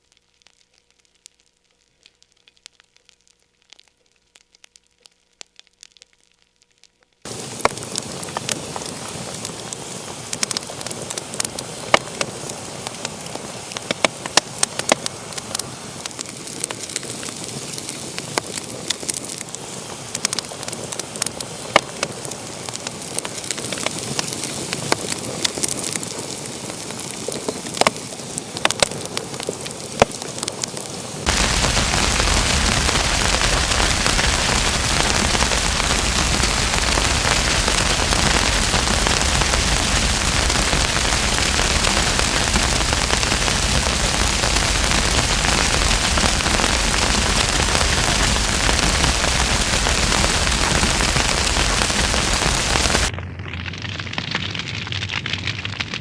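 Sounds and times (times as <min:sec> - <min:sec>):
wood fire crackling: 0:00.0 - 0:56.0
loud rushing hiss: 0:07.3 - 0:23.4, 0:31.2 - 0:53.1.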